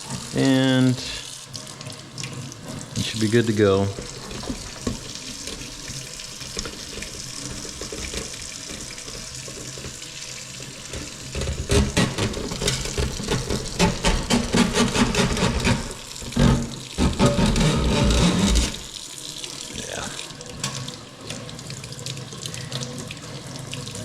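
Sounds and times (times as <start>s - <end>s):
tap water running into sink: 0.0s - 24.0s
knocks and splashing: 3.9s - 19.0s.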